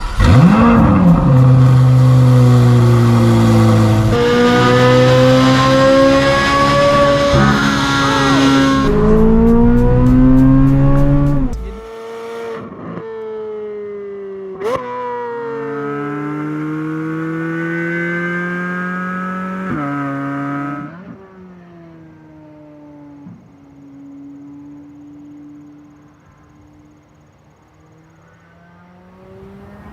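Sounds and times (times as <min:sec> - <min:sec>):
sports car exhaust revving: 0:00.0 - 0:12.1.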